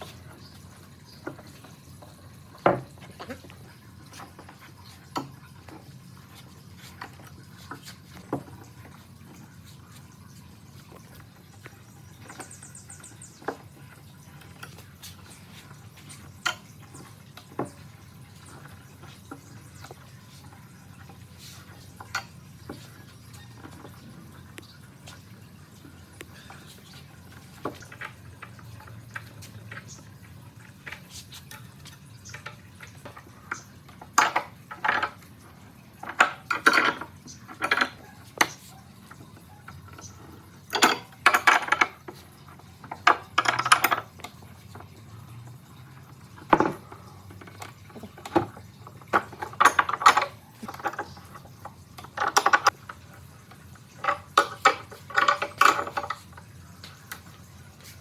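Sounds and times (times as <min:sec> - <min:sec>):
scraping and clinking on wood: 0:00.0 - 0:24.2, 0:25.1 - 0:53.2, 0:53.9 - 0:58.0.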